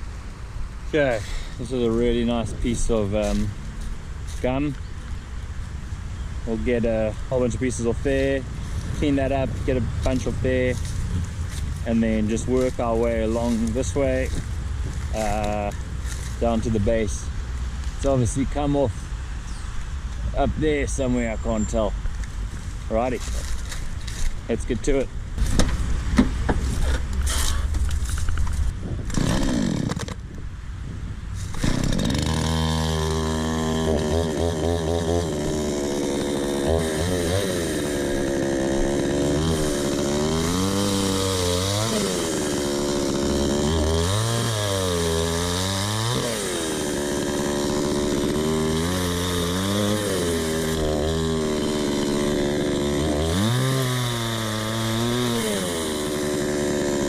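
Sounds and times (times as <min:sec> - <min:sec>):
chainsaw cutting wood: 0:08.1 - 0:17.1, 0:29.0 - 0:30.2, 0:31.4 - 0:57.0.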